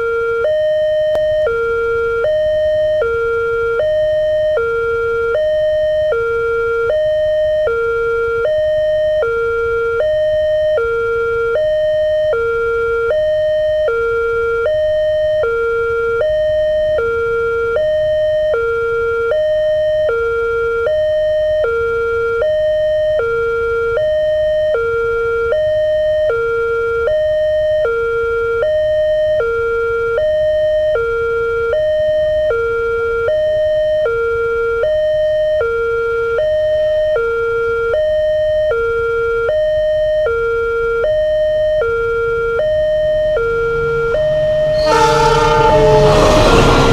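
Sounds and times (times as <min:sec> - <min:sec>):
level crossing two-tone siren: 0:42.2 - 0:46.9.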